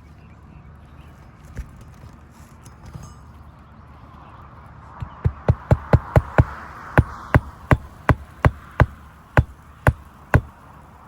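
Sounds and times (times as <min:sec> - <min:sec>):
hammer striking nail: 0:05.0 - 0:10.5.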